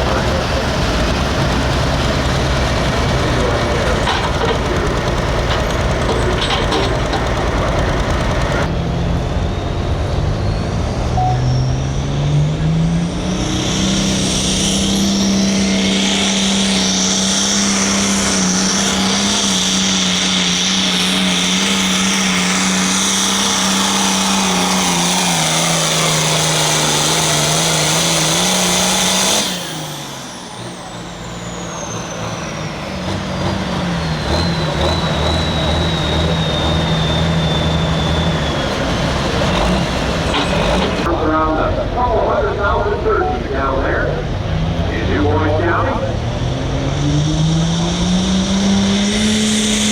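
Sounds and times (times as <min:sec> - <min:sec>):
tractor diesel engine revving: 0:00.0 - 0:49.9
high whine: 0:09.3 - 0:26.6, 0:40.3 - 0:49.9.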